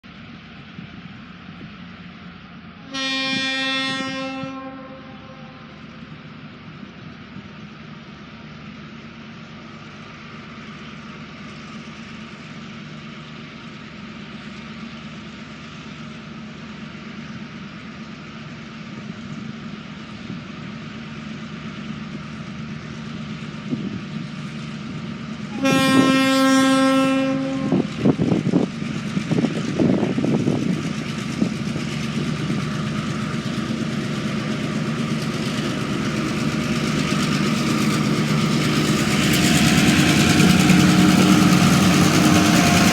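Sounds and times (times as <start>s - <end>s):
diesel locomotive engines: 0.0s - 42.9s
train horn blast: 2.8s - 5.9s, 25.5s - 28.0s.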